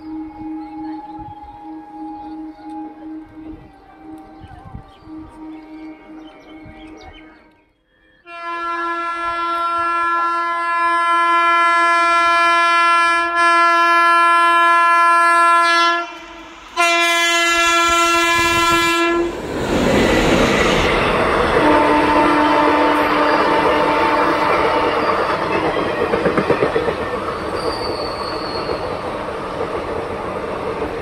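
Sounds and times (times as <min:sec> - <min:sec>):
train horn blasts: 0:00.0 - 0:07.5, 0:08.2 - 0:19.4, 0:21.5 - 0:25.5
train passing with wheel clatter: 0:14.2 - 0:31.0.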